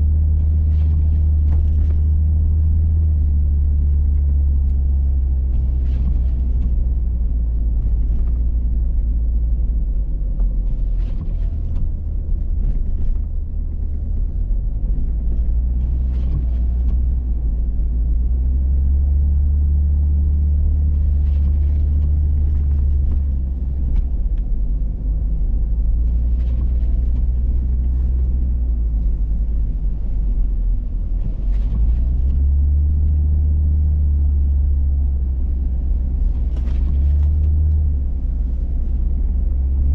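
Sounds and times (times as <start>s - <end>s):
engine and tyres rumbling: 0.0s - 39.9s.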